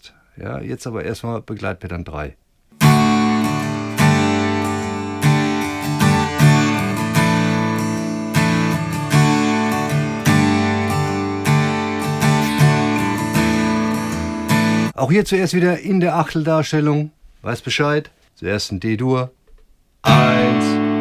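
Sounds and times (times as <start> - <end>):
acoustic guitar strumming: 2.8 - 15.0, 20.0 - 21.0.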